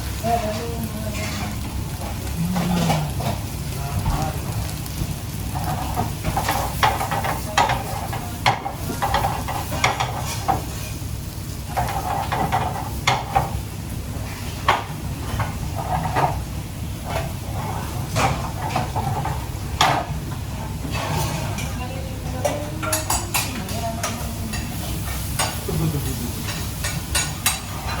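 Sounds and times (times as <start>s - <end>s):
metal utensil scraping a pan: 0.2s - 3.4s, 5.5s - 11.0s, 11.7s - 13.5s, 17.0s - 25.7s, 26.4s - 28.0s.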